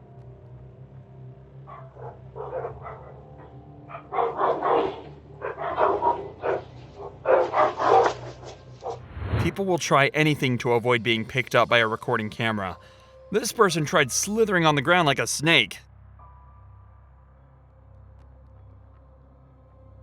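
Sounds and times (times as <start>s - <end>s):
dog barking: 1.7s - 9.0s.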